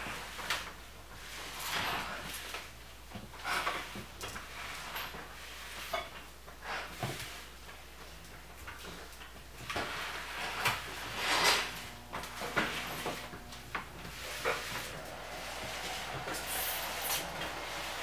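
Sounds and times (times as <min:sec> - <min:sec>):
rustling scrape: 0:09.7 - 0:13.4, 0:14.0 - 0:18.0.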